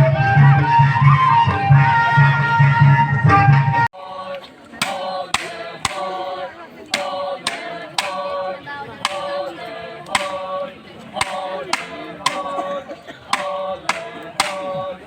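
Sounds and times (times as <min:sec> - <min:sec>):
group singing unaccompanied: 0:01.8 - 0:15.0
hand claps: 0:04.8 - 0:06.1, 0:07.0 - 0:08.2, 0:10.1 - 0:10.4, 0:11.2 - 0:12.5, 0:13.4 - 0:14.7.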